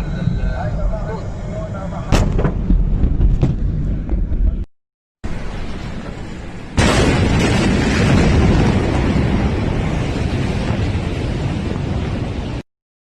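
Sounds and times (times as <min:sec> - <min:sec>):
explosion blast wave roar: 0:05.3 - 0:12.6.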